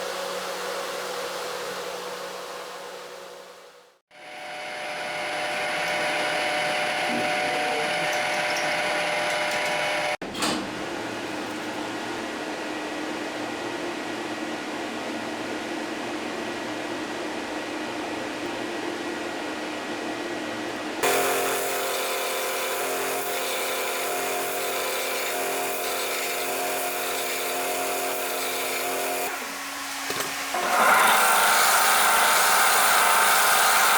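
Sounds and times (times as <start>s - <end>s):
power tool motor whining: 4.2s - 10.2s, 21.0s - 33.9s.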